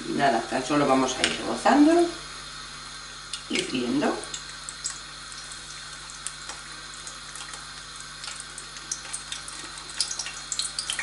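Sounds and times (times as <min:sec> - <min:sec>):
food sizzling in hot oil: 0:00.0 - 0:11.0
oil popping and crackling: 0:03.3 - 0:11.0.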